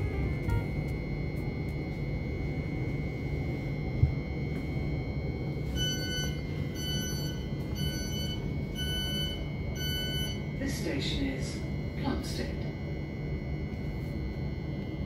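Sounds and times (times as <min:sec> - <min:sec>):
high whine: 0:00.0 - 0:15.0
train low rumble: 0:00.0 - 0:15.0
door warning beeps: 0:04.5 - 0:10.6.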